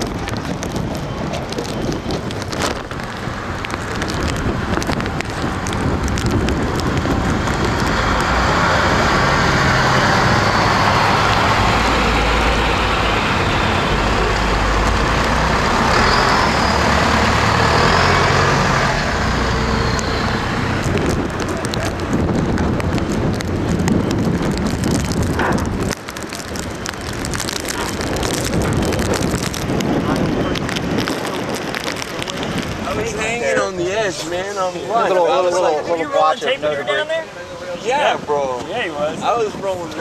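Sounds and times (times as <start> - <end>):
gusty wind rushing: 0.0 - 36.7
wind buffeting microphone: 0.0 - 40.0.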